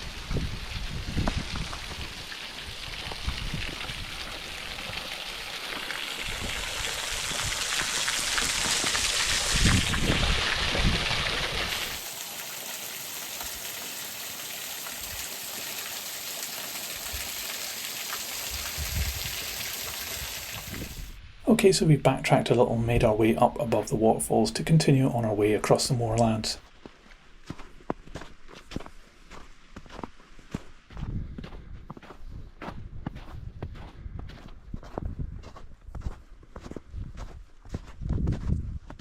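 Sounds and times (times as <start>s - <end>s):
waterfall rushing: 4.3s - 21.2s.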